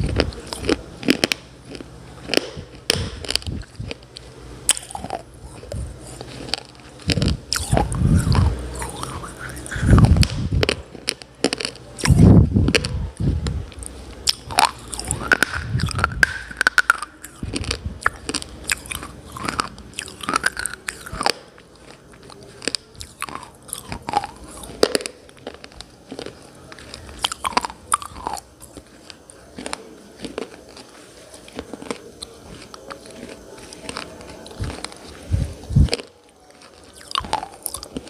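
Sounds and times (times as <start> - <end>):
person chewing brittle pieces: 0.0 - 38.0.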